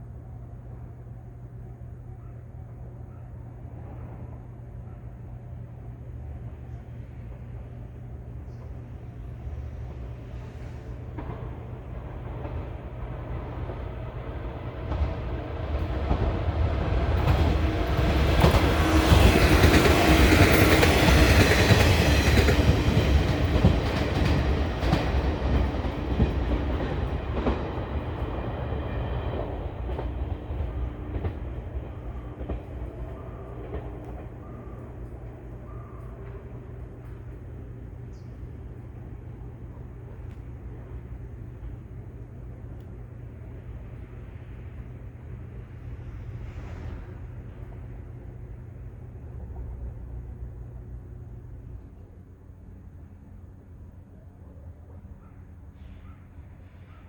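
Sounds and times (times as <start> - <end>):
electric train passing: 2.7 - 57.0
wheels clacking over rail joints: 11.0 - 37.8.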